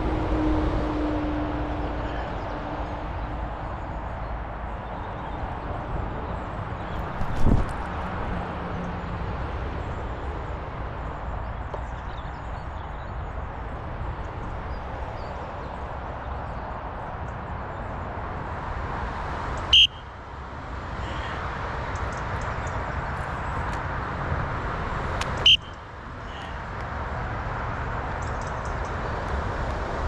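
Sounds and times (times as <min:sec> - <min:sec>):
wind on microphone: 0:06.9 - 0:08.5.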